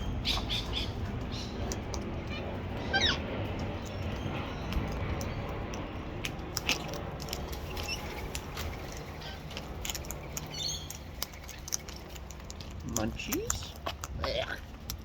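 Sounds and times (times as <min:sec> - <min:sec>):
parrots cracking seed husks: 0:00.9 - 0:15.0
parrot chirps: 0:02.3 - 0:03.2.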